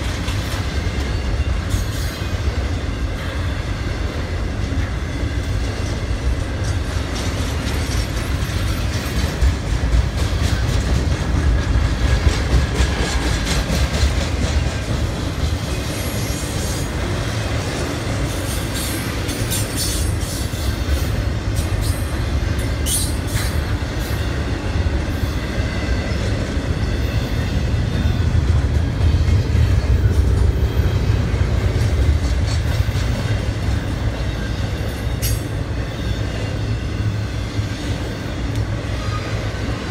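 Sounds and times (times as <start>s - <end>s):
train cars rumbling past: 0.0s - 39.9s
wheels clacking over rail joints: 4.6s - 24.6s, 25.6s - 35.6s.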